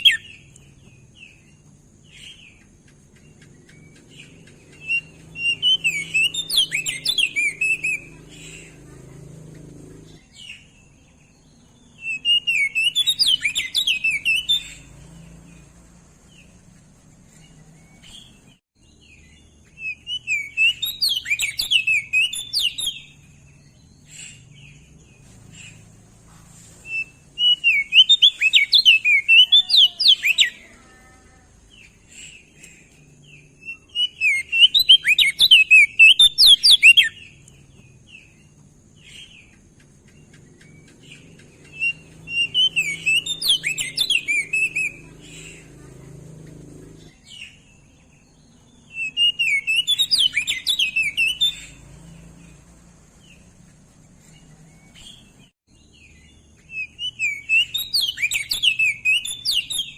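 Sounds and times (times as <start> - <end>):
bird chirping song: 0.0 - 59.9.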